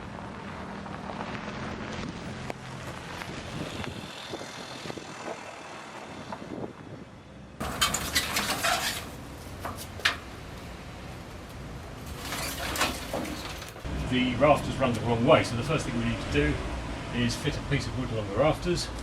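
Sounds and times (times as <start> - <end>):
clattering and knocking: 7.6 - 10.3, 12.1 - 13.8.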